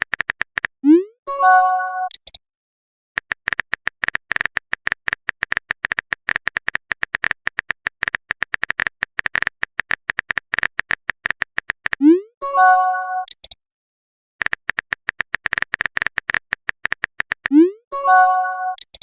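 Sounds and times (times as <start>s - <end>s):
phone keyboard typing clicks: 0.0s - 0.8s, 3.2s - 12.1s, 13.2s - 13.6s, 14.4s - 17.6s, 18.6s - 19.0s.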